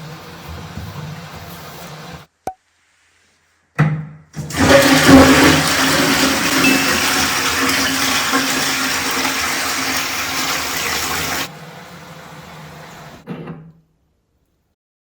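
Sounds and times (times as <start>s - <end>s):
toilet flushing: 4.4s - 13.3s.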